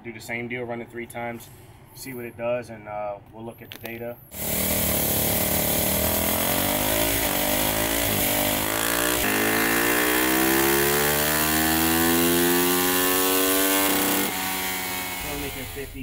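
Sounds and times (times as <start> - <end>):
motorcycle engine revving: 4.3 - 16.0.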